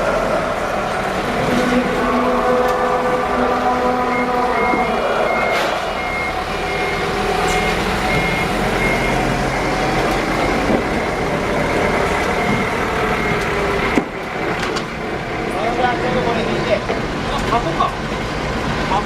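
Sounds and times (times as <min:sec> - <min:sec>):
engines and machinery din: 0:00.0 - 0:19.0
reversing alarm beeping: 0:01.8 - 0:14.0.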